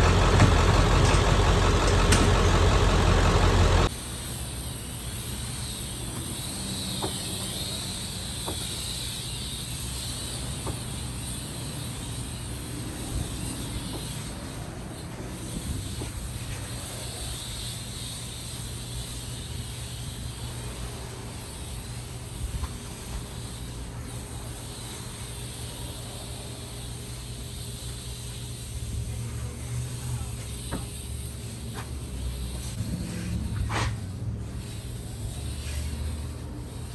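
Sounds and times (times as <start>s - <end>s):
diesel truck engine idling: 0.0s - 4.0s.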